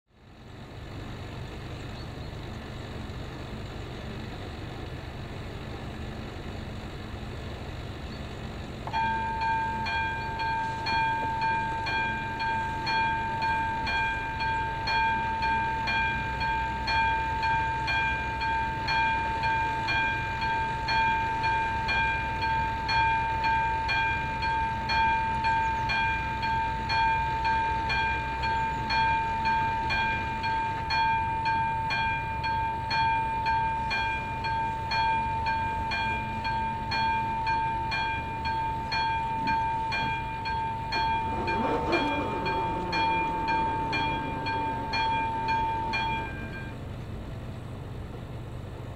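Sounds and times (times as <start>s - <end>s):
level crossing warning tone pulsing: 8.9s - 47.4s.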